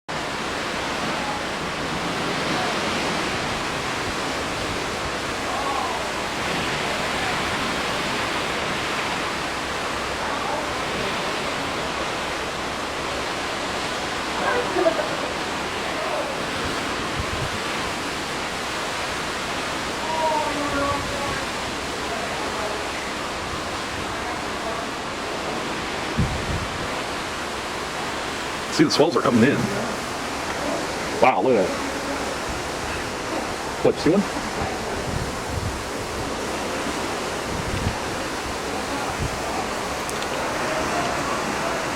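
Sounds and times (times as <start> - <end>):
open sea rushing: 0.1 - 41.9
wind: 0.1 - 41.9
wind rushing: 26.0 - 27.2, 32.3 - 36.6.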